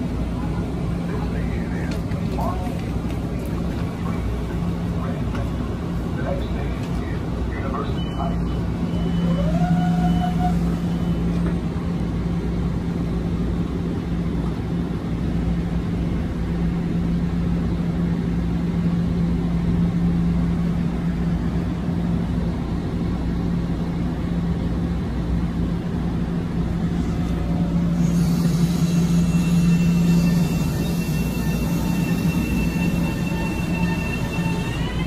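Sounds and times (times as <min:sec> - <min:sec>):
train whining tones: 0:00.0 - 0:12.1, 0:26.6 - 0:35.0
train equipment humming: 0:00.0 - 0:35.0.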